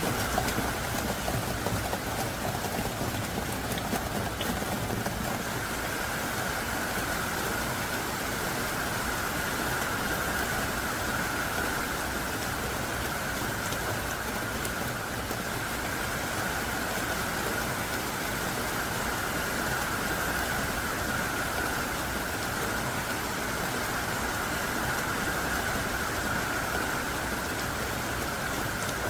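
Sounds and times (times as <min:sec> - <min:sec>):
sharp raindrop ticks: 0:00.0 - 0:06.0, 0:11.1 - 0:16.0
heavy rain hissing: 0:00.0 - 0:29.0.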